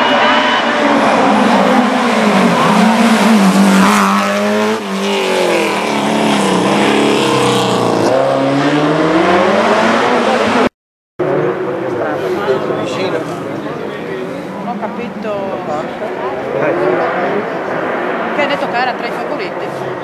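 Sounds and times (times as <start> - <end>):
rally car engine revving: 0.0 - 14.9.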